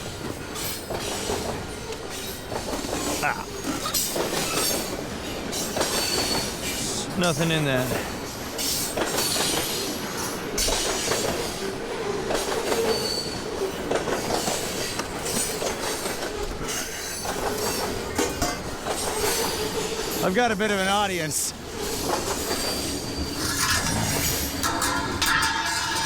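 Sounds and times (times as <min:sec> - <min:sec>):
scrap metal clanking: 0:22.6 - 0:26.0.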